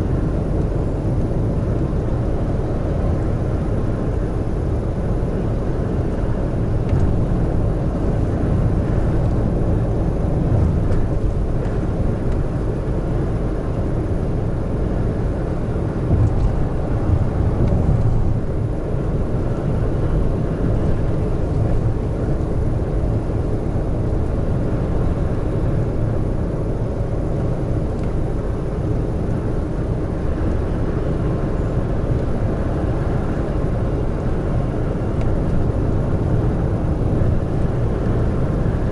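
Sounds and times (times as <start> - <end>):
truck engine and road noise: 0.0 - 38.9.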